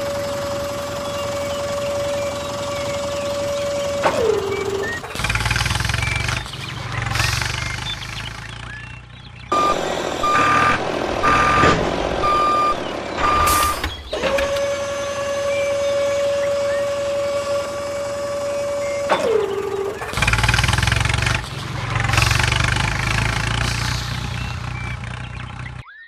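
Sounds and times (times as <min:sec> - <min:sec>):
vehicle engine rumbling: 0:00.0 - 0:25.8
reversing alarm beeping: 0:09.5 - 0:20.0.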